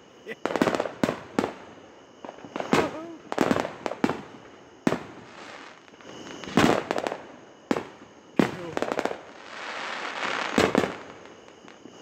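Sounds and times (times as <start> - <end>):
fireworks bangs: 2.4 - 11.1
fireworks crackling: 2.4 - 12.0.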